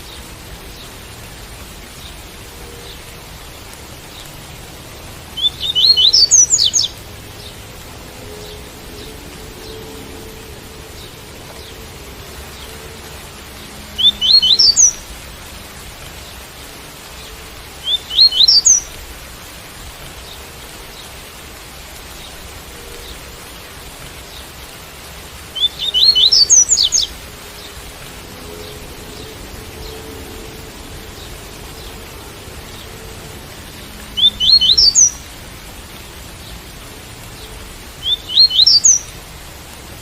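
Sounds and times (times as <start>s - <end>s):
rain hiss: 0.0s - 40.0s
bird singing high notes: 13.5s - 15.1s, 25.6s - 27.2s.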